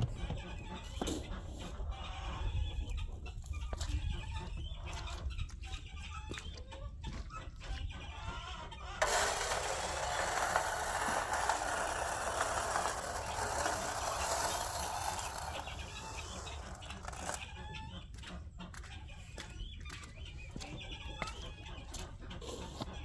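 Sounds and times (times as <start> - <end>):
chickens clucking: 0.0 - 9.0, 15.4 - 23.0.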